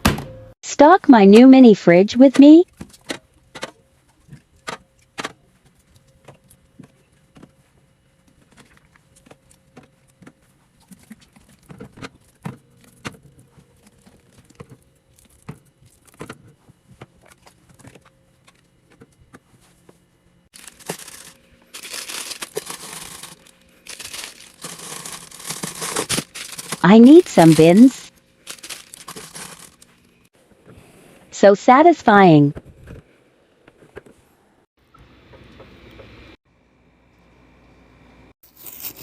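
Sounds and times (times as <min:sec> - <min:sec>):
plastic packaging crinkling: 0:20.5 - 0:30.0
items clicking and tapping: 0:20.6 - 0:27.9, 0:28.5 - 0:29.9.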